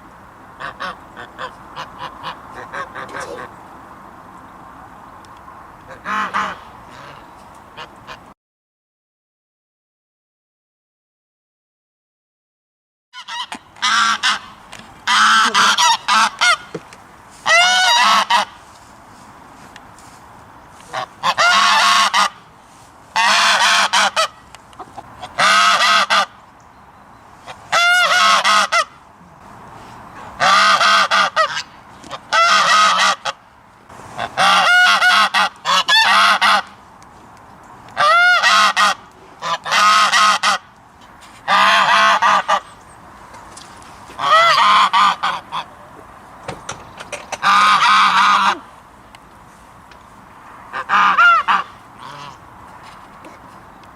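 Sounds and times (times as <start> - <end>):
steady background noise: 0.0 - 8.3, 13.2 - 53.9
geese honking: 0.6 - 3.6, 5.9 - 8.3, 13.2 - 18.7, 20.8 - 22.5, 23.1 - 26.4, 27.4 - 29.0, 30.2 - 33.4, 34.1 - 36.8, 38.0 - 40.7, 41.4 - 42.7, 44.1 - 45.8, 47.1 - 48.7, 50.7 - 52.5.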